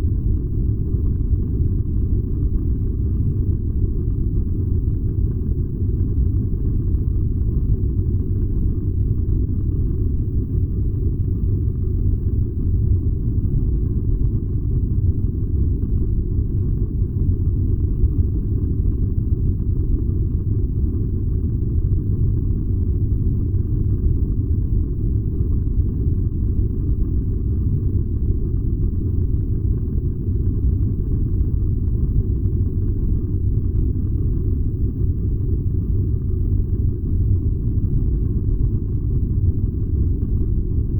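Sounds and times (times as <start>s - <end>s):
furnace burning with low rumble: 0.0s - 40.9s.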